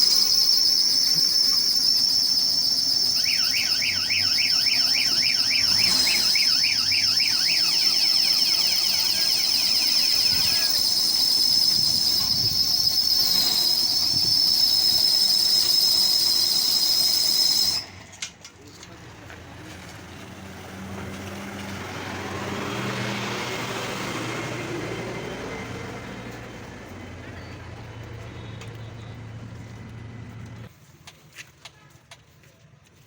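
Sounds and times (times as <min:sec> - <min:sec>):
insects shrilling drone: 0:00.0 - 0:17.8
rapid rising-and-falling call: 0:00.0 - 0:17.9.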